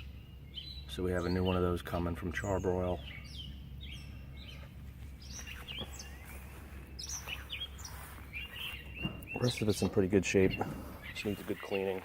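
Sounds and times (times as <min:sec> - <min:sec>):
birds chirping: 0:00.0 - 0:12.0
low outdoor rumble: 0:00.0 - 0:12.0.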